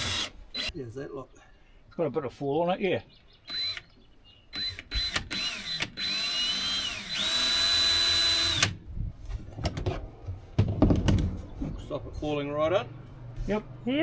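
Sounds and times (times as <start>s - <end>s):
power drill driving a screw: 0.0s - 0.7s, 3.5s - 3.9s, 4.5s - 8.8s.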